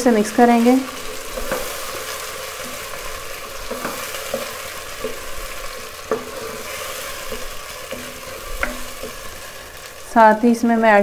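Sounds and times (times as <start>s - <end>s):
wooden spoon stirring: 0.0s - 10.0s
food sizzling in a pot: 0.0s - 11.0s
spoon knocking against pot: 7.2s - 9.2s.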